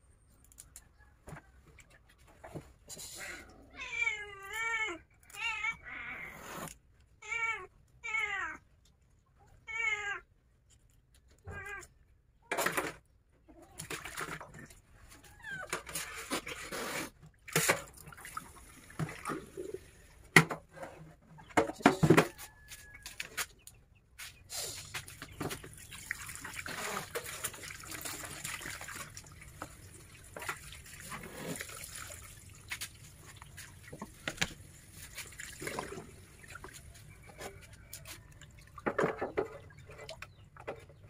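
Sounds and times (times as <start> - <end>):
water splashing in sink: 13.7 - 20.6, 24.9 - 40.4
plastic containers clattering in sink: 17.4 - 20.8, 21.4 - 23.0, 25.2 - 41.0.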